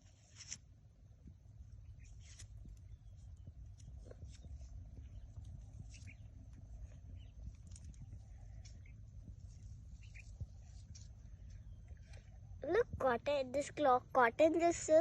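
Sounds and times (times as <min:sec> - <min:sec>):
wind rumble on microphone: 0:01.0 - 0:13.2
dry plants rustling and snapping: 0:02.1 - 0:02.9, 0:07.5 - 0:08.9.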